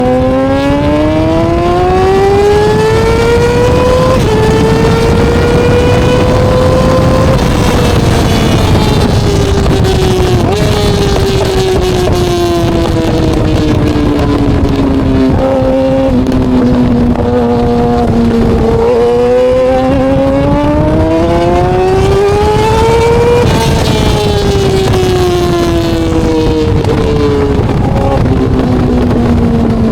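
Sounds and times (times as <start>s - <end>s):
motorcycle engine running loudly: 0.0s - 29.9s.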